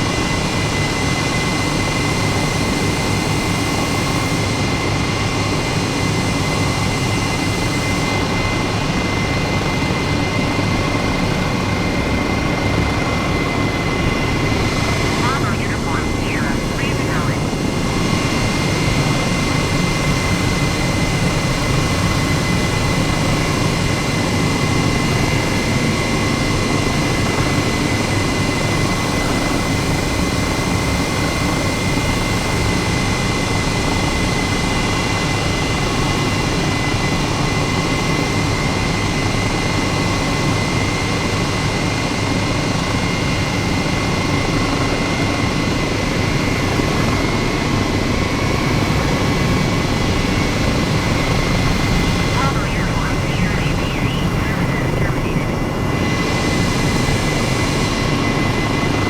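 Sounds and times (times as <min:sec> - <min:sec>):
jet engine noise: 0:00.0 - 0:34.5, 0:43.1 - 0:59.0
constant high whine: 0:07.2 - 0:34.2, 0:48.5 - 0:59.0.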